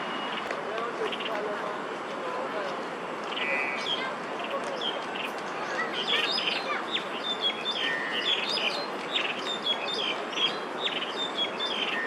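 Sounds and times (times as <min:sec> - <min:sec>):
small birds chirping: 0:03.3 - 0:12.0.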